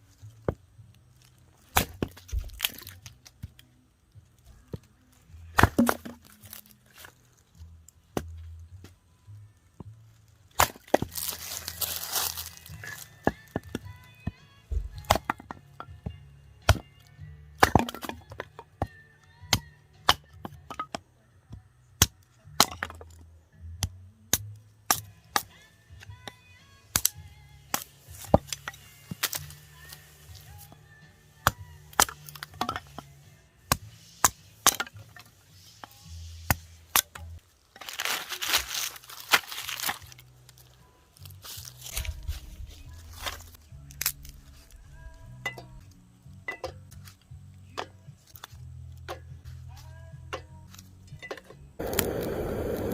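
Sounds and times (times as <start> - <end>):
background music: 0.0 - 52.9
firewood being chopped: 1.6 - 3.6, 5.5 - 7.4, 9.8 - 16.0, 16.7 - 23.2, 23.8 - 25.6, 26.9 - 30.5, 31.4 - 33.1, 33.7 - 35.4, 36.5 - 45.8, 51.8 - 52.9.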